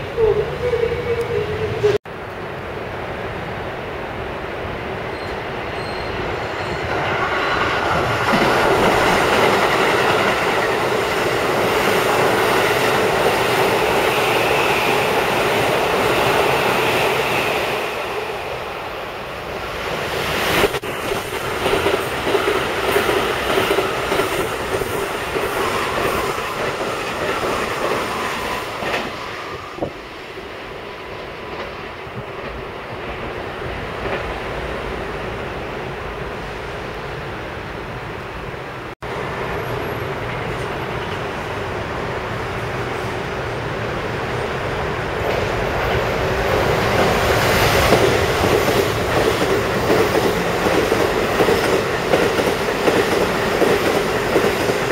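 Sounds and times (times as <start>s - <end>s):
train running noise: 0.0s - 54.9s
wheel squeal: 5.1s - 7.6s.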